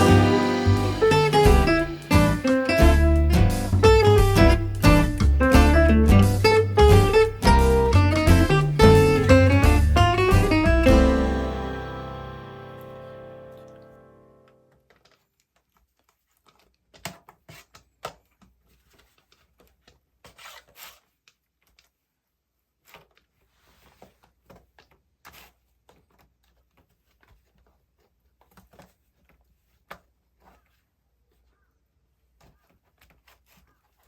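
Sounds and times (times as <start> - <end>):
background music: 0.0 - 14.6
rubbing and rustling: 14.9 - 34.0.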